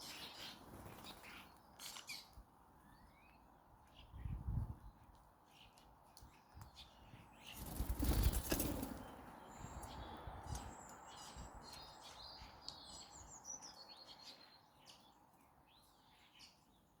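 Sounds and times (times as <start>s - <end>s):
bird wings flapping: 7.6s - 9.1s.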